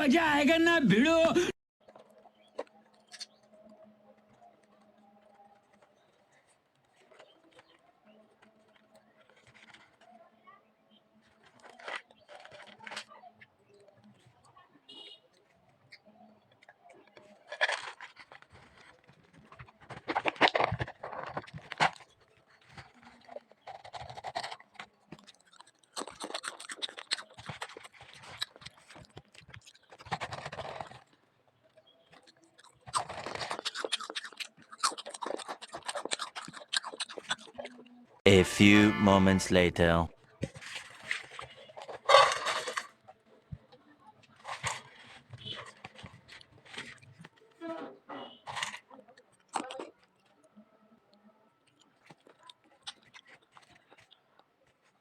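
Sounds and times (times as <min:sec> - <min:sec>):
potato crisps crunched and chewed: 0:11.3 - 0:13.1, 0:16.6 - 0:31.2, 0:32.1 - 0:37.9, 0:48.6 - 0:50.3, 0:51.6 - 0:54.9.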